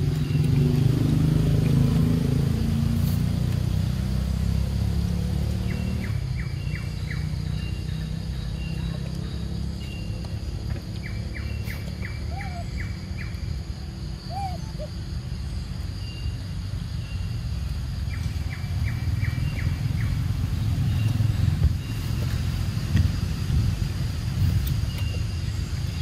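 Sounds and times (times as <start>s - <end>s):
bird sharp chirps: 5.5s - 13.6s
steady low rumble: 16.6s - 26.0s.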